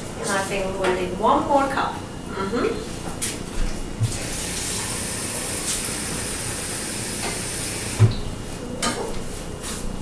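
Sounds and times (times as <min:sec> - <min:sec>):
hot pan hissing: 0:04.2 - 0:08.1.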